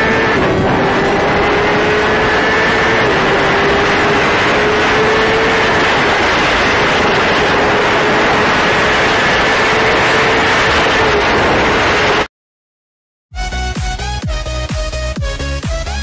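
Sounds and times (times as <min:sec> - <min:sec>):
loud vehicle rush and drone: 0:00.0 - 0:12.3.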